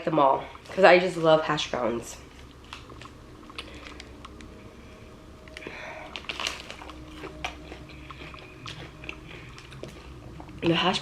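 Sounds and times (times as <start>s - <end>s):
chewing and crunching food: 2.2s - 4.5s, 5.5s - 11.0s.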